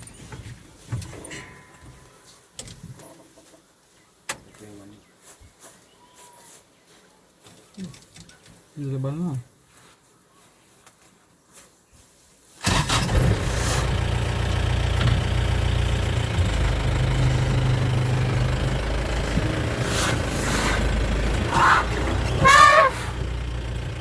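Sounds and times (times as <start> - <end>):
vehicle engine running: 12.6 - 24.0
wavering high calls: 19.0 - 23.5.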